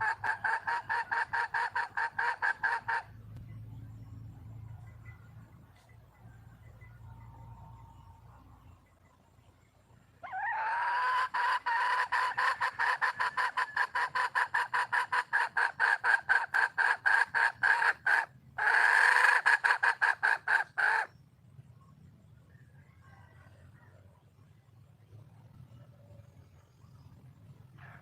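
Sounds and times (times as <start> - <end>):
hen clucking rapidly: 0.0 - 3.3, 10.3 - 21.2.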